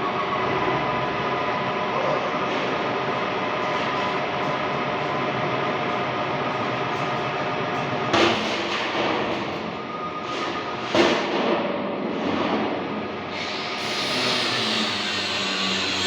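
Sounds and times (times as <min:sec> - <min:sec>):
machinery humming and whining: 0:00.0 - 0:08.1, 0:12.9 - 0:16.0.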